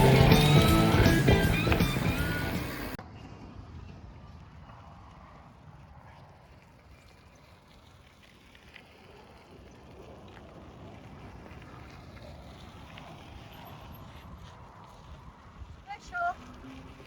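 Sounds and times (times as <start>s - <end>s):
bike ticks and rattles: 0.0s - 3.0s, 4.7s - 17.0s
wind rumbling on microphone: 9.0s - 17.0s.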